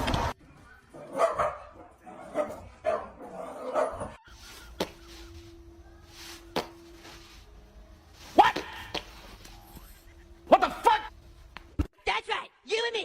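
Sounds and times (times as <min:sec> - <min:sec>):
dog barking: 0:00.6 - 0:04.2.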